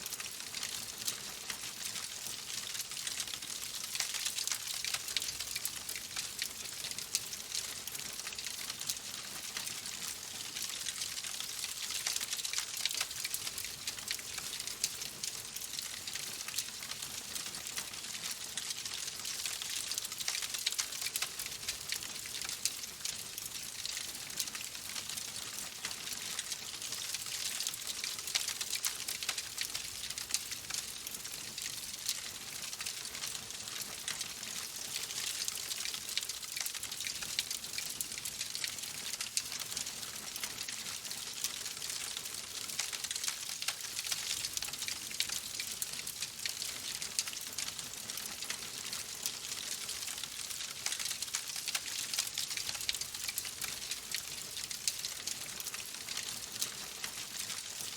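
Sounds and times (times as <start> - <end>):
wood fire crackling: 13.9 - 23.1, 27.3 - 31.2, 32.0 - 57.9.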